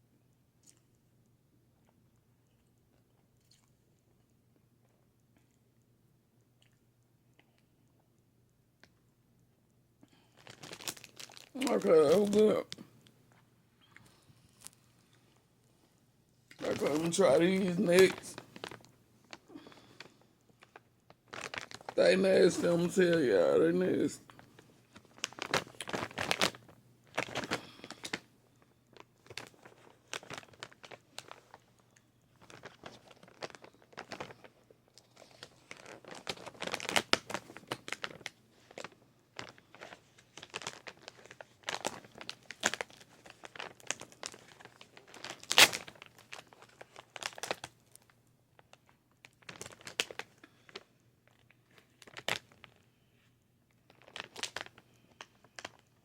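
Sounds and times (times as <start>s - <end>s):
plastic wrapper crinkling and tearing: 10.1s - 12.9s, 16.5s - 53.0s, 53.7s - 56.0s.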